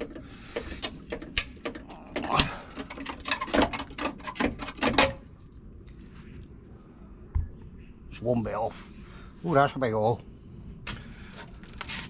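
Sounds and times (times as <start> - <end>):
sheet metal knocks and clatters: 0.0 - 5.2.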